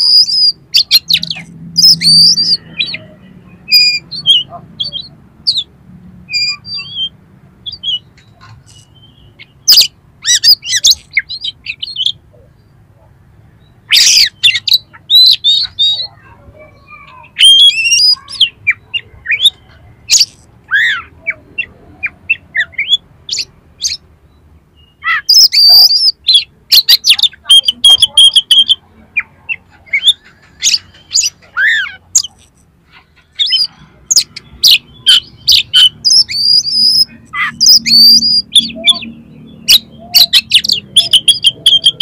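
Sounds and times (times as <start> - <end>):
bird singing harsh chirps: 0.0 - 12.8, 13.5 - 42.0.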